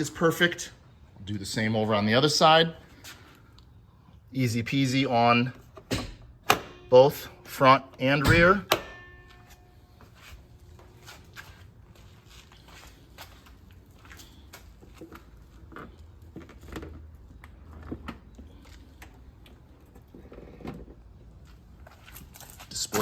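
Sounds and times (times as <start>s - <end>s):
low steady hum: 0.0s - 23.0s
handling clicks and rustles: 8.3s - 23.0s.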